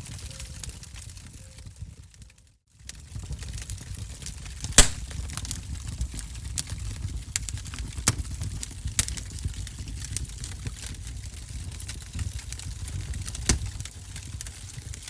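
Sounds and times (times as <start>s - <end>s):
wood fire crackling: 4.8s - 6.2s, 8.9s - 15.0s.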